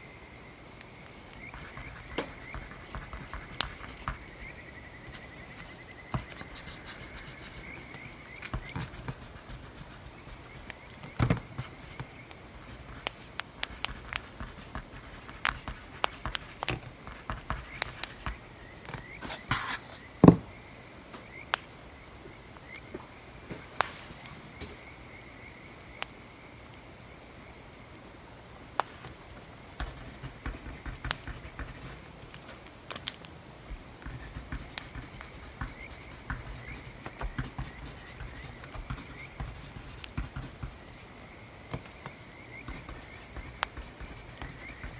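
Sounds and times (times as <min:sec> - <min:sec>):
wood fire crackling: 0:28.7 - 0:44.9.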